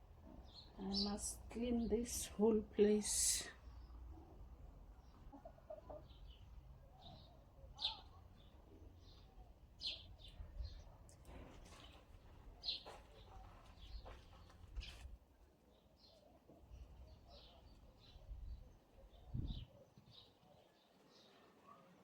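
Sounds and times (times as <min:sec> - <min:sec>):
birds chirping: 0:00.3 - 0:15.0.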